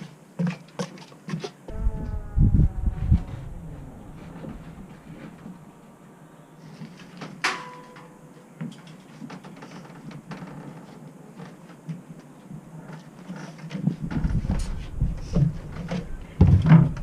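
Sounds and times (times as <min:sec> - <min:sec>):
faint clatter and knocks: 0:00.0 - 0:01.6.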